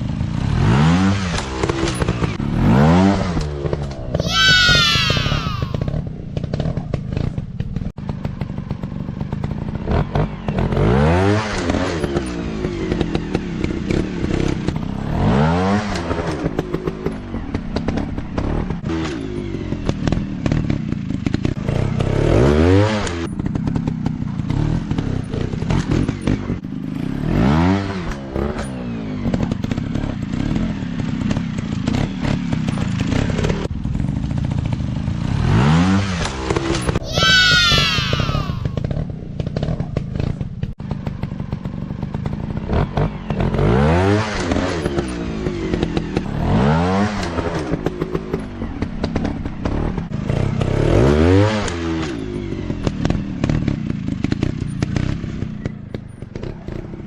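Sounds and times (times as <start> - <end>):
dirt bike engines revving: 0.1 - 33.7, 35.2 - 40.4.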